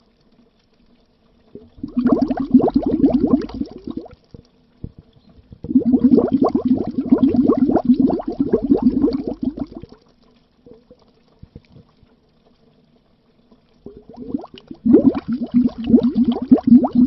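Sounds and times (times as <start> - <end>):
underwater air bubbles popping: 1.5 - 10.0, 13.8 - 17.0.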